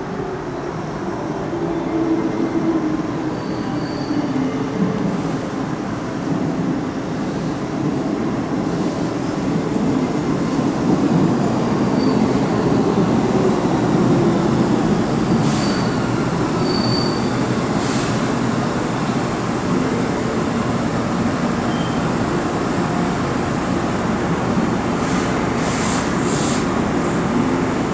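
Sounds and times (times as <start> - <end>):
train rail rumble: 4.8 - 27.9
high-pitched wheel squeals: 16.6 - 17.4.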